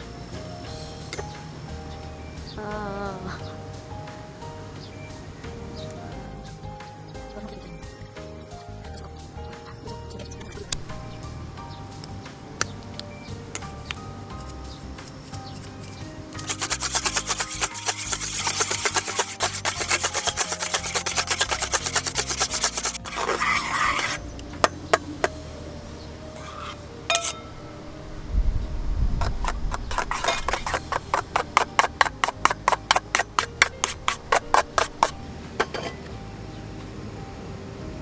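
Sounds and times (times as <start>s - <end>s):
soft background music: 0.0s - 38.0s
knife scraping wooden stick: 14.3s - 24.3s, 26.4s - 27.4s, 29.4s - 35.2s.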